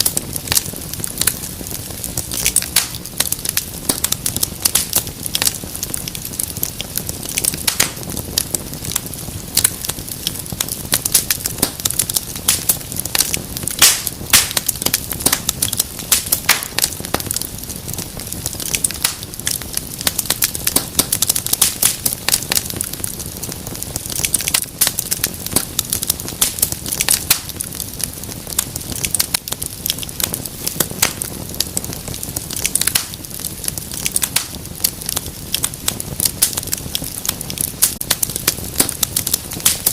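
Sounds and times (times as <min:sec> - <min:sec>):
fire crackling in fireplace: 0:00.0 - 0:39.9.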